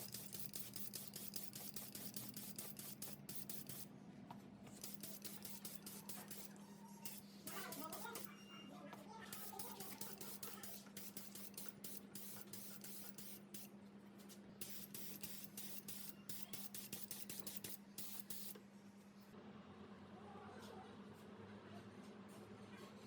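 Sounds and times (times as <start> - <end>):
hissing spray bursts: 9.4 - 13.7, 14.6 - 18.5.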